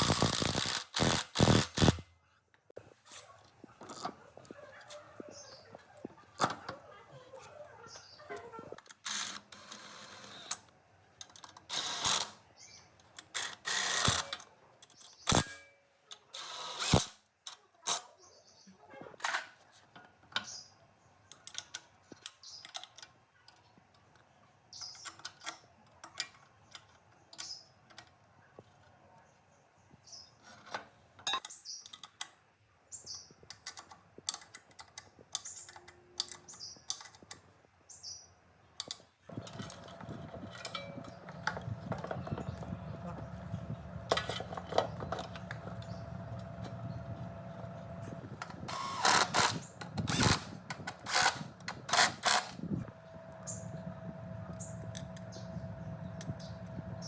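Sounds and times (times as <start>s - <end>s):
tools and metal parts clinking: 13.0s - 16.3s, 21.3s - 28.9s, 33.4s - 37.5s, 38.8s - 52.6s.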